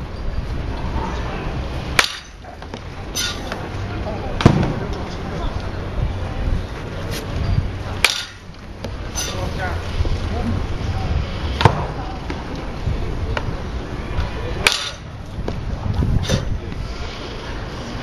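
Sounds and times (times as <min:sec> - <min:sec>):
murmur of voices: 0:00.8 - 0:18.0
baseball bat cracking ball: 0:01.9 - 0:03.7, 0:04.4 - 0:04.8, 0:08.0 - 0:09.0, 0:14.6 - 0:15.1.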